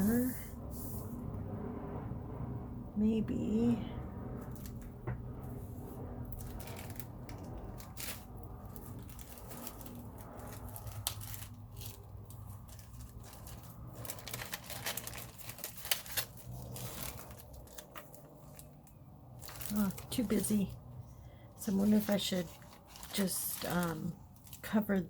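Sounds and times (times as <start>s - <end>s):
steady low hum: 0.0s - 25.0s
paper rustling and crinkling: 6.4s - 20.9s, 21.6s - 25.0s.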